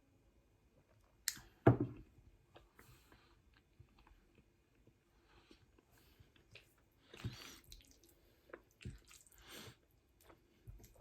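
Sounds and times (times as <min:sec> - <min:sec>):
wet chewing and mouth smacks: 0:05.8 - 0:11.0.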